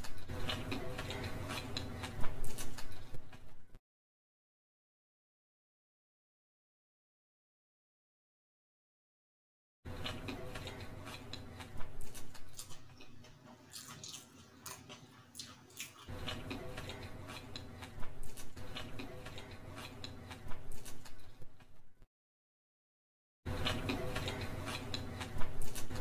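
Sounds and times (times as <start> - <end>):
wet chewing and lip smacks: 10.3 - 21.2.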